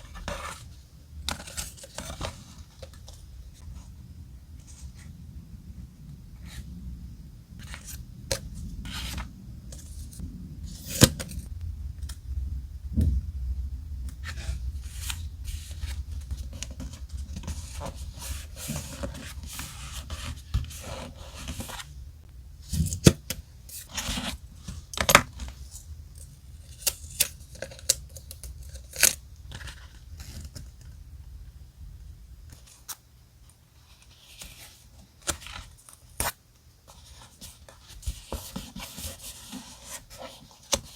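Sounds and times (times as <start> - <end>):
paper rustling: 14.2 - 21.9.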